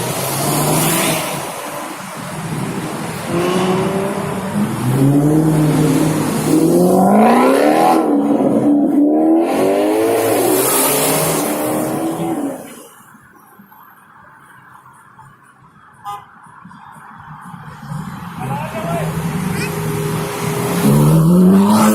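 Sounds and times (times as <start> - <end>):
car engine revving: 0.0 - 12.8, 17.8 - 21.9.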